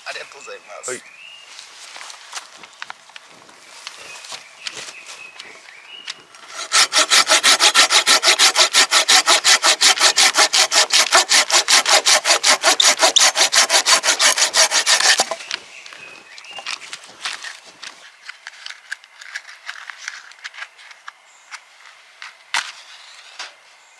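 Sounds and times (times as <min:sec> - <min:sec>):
hand saw cutting wood: 0:06.4 - 0:15.5.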